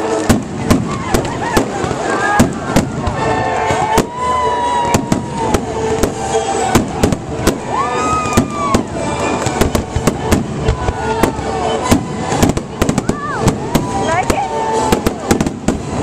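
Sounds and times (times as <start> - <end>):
fireworks banging: 0.0 - 16.0.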